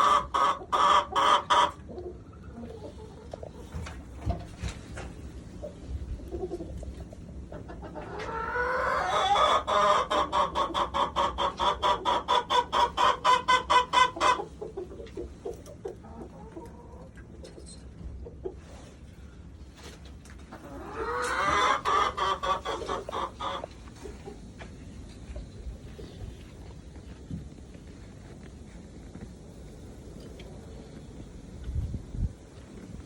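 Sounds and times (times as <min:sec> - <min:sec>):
chicken clucking: 0:00.0 - 0:19.1, 0:19.7 - 0:27.2.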